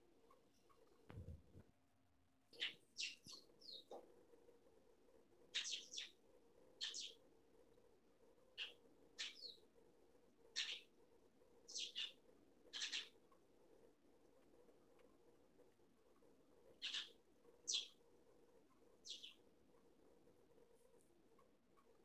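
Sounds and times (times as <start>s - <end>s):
small bird chirping: 2.5s - 4.0s, 5.5s - 7.3s, 8.4s - 9.8s, 10.4s - 11.0s, 11.6s - 13.4s, 16.7s - 18.0s, 18.6s - 19.5s.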